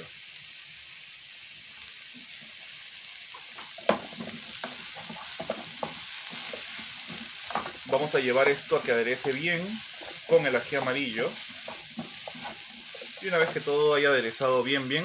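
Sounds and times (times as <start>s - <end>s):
vegetables sizzling in oil: 0.0s - 15.0s
wooden spoon knocking and scraping pan: 3.3s - 13.8s.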